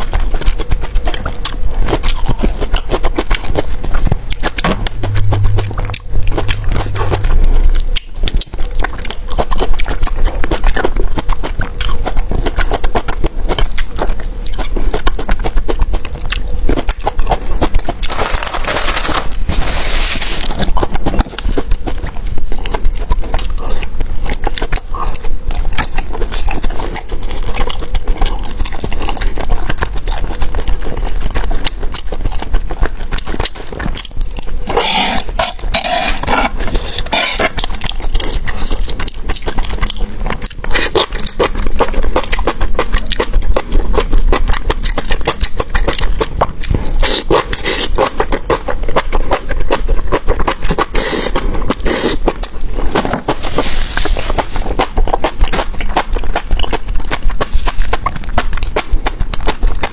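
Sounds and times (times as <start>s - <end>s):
close chewing and mouth noises: 0.0s - 59.9s.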